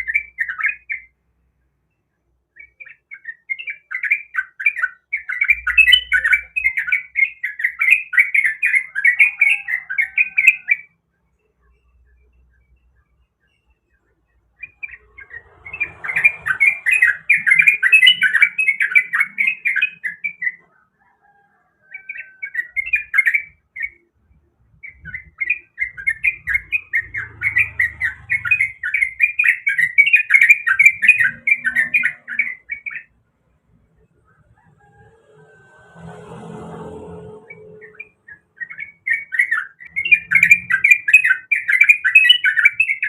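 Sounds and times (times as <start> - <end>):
bird chattering song: 0.0 - 1.2, 1.9 - 20.9, 22.0 - 34.6, 37.5 - 43.0.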